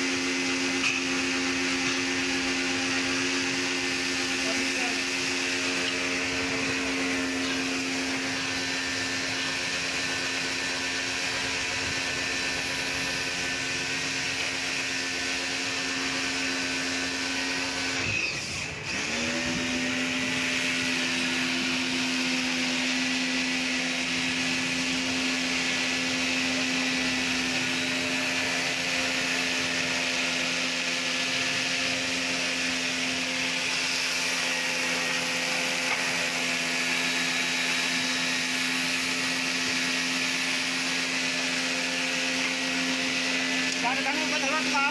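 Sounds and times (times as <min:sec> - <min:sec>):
motor-driven machine humming: 0:00.0 - 0:44.9.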